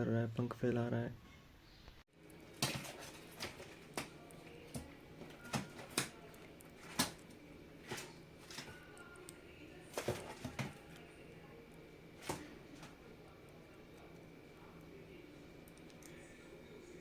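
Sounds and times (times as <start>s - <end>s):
parrot scrambling in a container: 2.4s - 11.3s, 11.9s - 13.2s.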